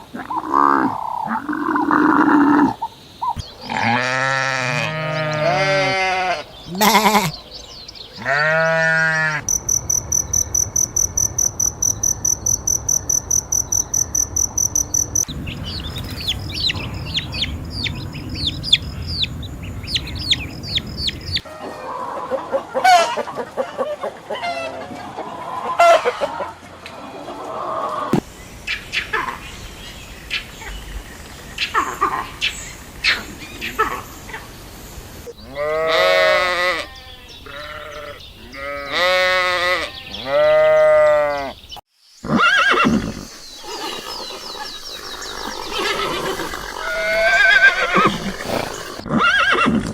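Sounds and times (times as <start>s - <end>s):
clucking calls: 6.6s - 8.5s, 42.6s - 49.1s
high pulsing animal trill: 42.4s - 49.1s.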